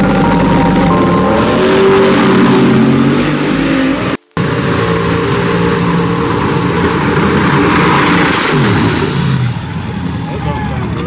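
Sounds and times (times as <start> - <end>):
race car engine running: 0.0 - 8.7.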